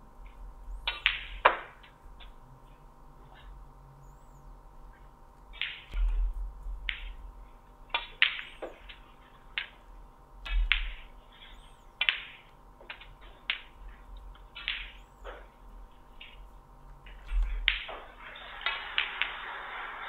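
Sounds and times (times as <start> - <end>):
small bird chirping: 3.4 - 6.2, 13.8 - 15.6.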